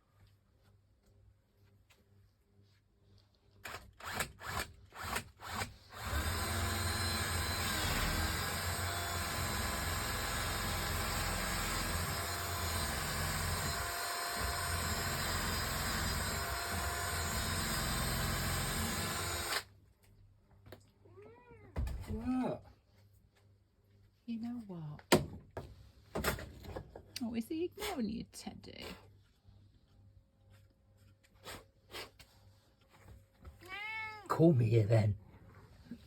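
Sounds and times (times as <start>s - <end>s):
electric power tool running: 3.7s - 19.7s.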